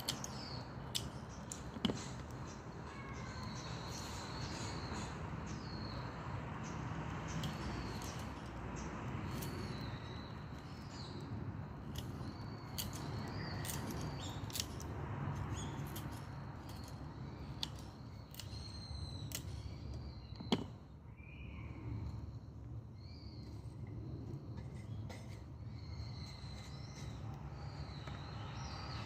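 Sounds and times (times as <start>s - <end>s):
birds chirping: 0.0s - 29.0s
burning branches crackling and popping: 6.6s - 19.8s.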